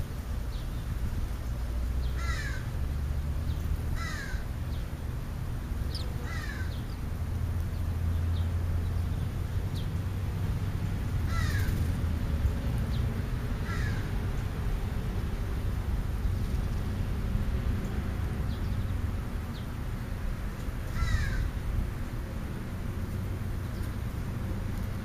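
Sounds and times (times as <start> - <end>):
steady low rumble: 0.0 - 25.0
bird giving harsh caws: 2.2 - 2.7, 4.0 - 4.5, 6.2 - 6.8, 11.3 - 11.8, 13.6 - 14.1, 20.9 - 21.6.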